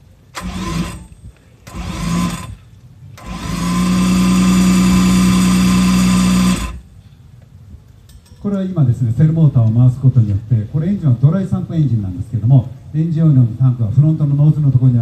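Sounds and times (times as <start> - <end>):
starter motor cranking engine: 0.3 - 6.8.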